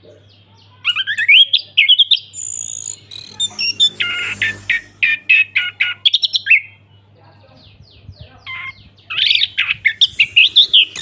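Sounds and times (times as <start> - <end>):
thrush singing: 2.4 - 6.8, 9.4 - 11.0.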